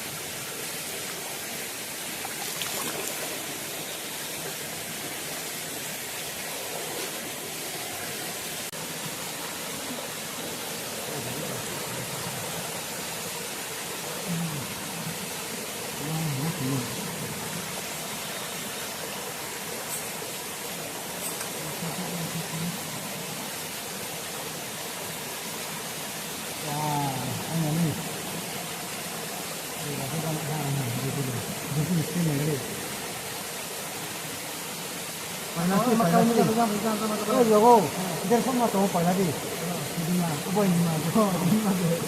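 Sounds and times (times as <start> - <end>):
stream water flowing: 0.0 - 42.0.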